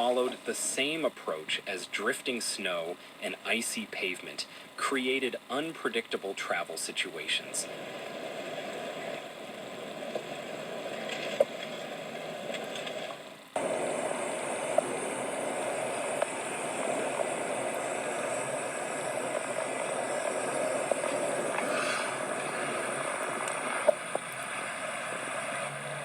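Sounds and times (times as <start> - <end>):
steady rushing noise: 7.0 - 26.0.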